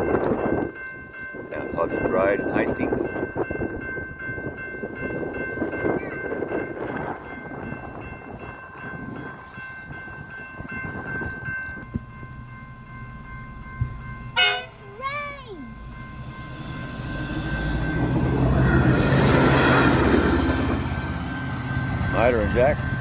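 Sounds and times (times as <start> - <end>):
steady ringing tones: 0.0 - 23.0
diesel railcar rumbling past: 1.4 - 23.0.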